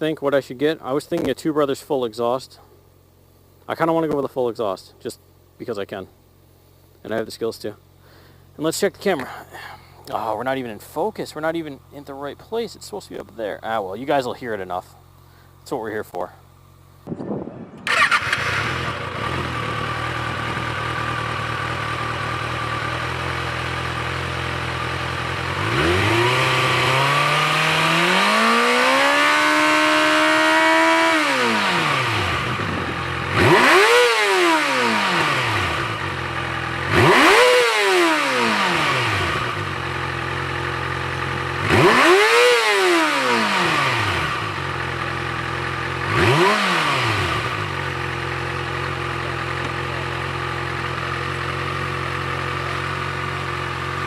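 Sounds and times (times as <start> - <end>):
motorcycle engine idling and revving: 17.7 - 54.0.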